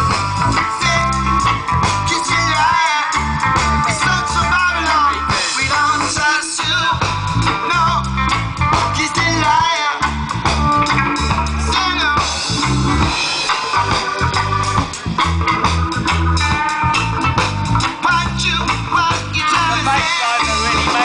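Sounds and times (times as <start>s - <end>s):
bass line: 0.0s - 21.0s
guitar: 0.0s - 21.0s
organ: 0.0s - 21.0s.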